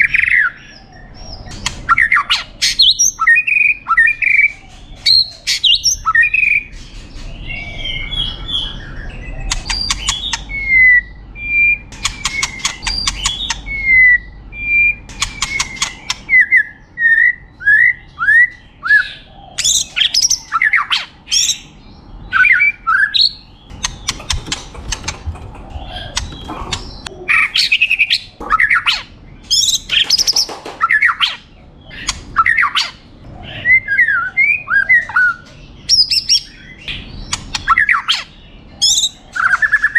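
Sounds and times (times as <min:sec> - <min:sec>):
bird singing whistled song: 0:07.4 - 0:21.7, 0:22.3 - 0:23.5, 0:27.4 - 0:39.9
rapid rattling clicks: 0:23.7 - 0:27.1.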